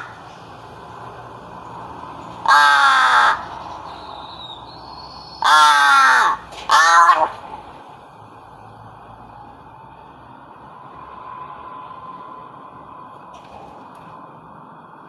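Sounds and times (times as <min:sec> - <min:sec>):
bird harsh calls: 0:02.1 - 0:07.6.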